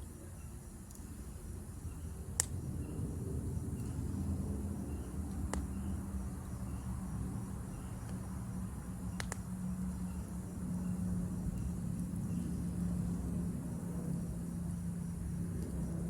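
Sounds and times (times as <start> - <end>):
faint insect chirping: 0.0 - 16.0
steady low rumble: 0.0 - 16.0
campfire crackling and popping: 2.3 - 2.7, 5.3 - 5.7, 9.1 - 9.6.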